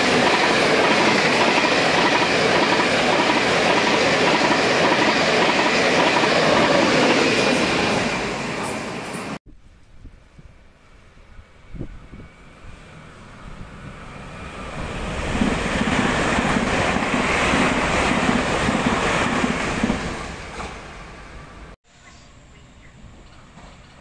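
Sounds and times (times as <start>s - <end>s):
train passing at speed: 0.0s - 9.4s, 10.8s - 21.8s
train wheels beating: 0.0s - 9.4s.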